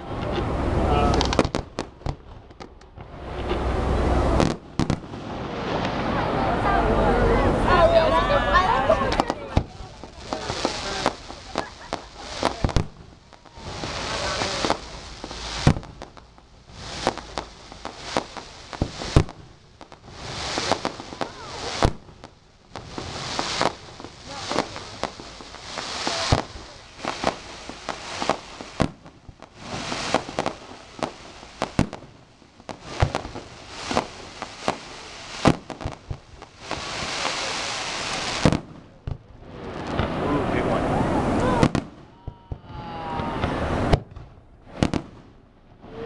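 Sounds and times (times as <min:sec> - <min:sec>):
fireworks booming: 0:00.0 - 0:46.0
fireworks crackling and sizzling: 0:00.0 - 0:46.0.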